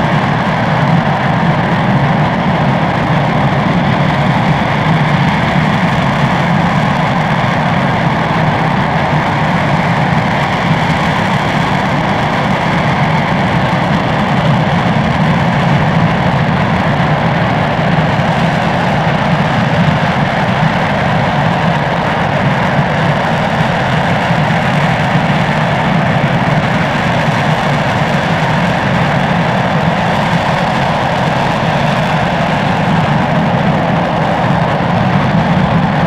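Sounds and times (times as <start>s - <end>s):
rocket engine roaring: 0.0s - 36.0s.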